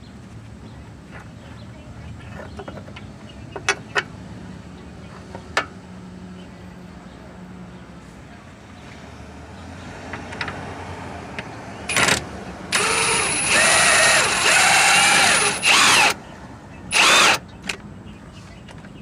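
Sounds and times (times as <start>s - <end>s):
power tool motor whirring: 11.9s - 16.2s, 16.9s - 17.4s.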